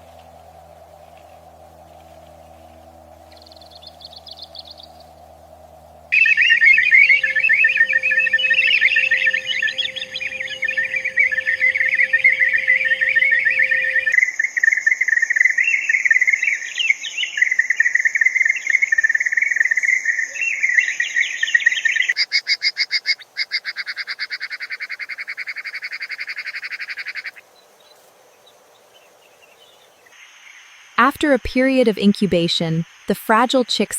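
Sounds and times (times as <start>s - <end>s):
high insect whine: 0.0s - 15.4s
fast insect trill: 0.0s - 15.6s
dense bird chatter: 6.1s - 14.1s.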